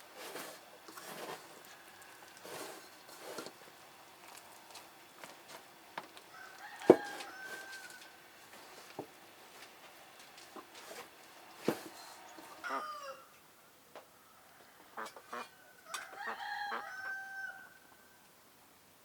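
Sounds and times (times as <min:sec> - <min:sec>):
rooster crowing: 0:01.6 - 0:02.8, 0:06.3 - 0:08.2, 0:11.9 - 0:13.4, 0:14.2 - 0:18.2.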